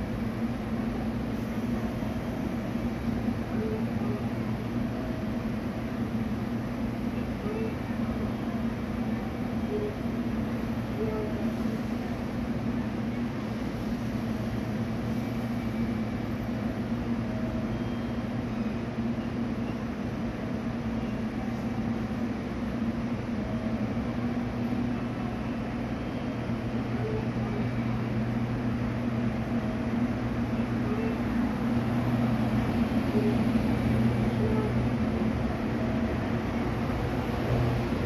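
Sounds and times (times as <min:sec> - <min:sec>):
standing train humming: 0:00.0 - 0:38.0
train moving past: 0:00.0 - 0:38.0.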